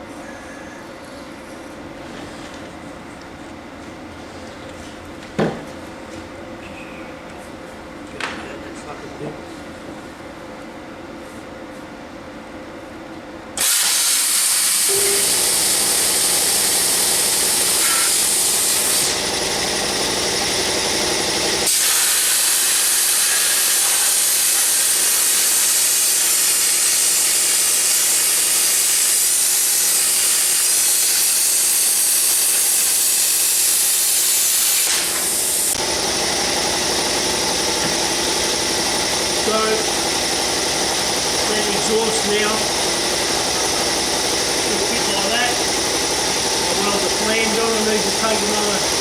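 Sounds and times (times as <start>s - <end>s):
plasma cutter hissing: 13.6s - 36.1s, 37.4s - 49.0s.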